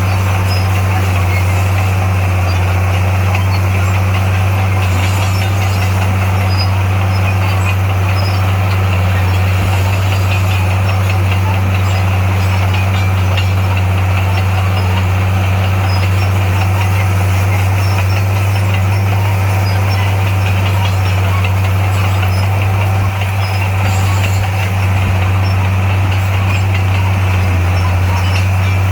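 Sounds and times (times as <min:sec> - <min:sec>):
heavy diesel engine humming: 0:00.0 - 0:28.9.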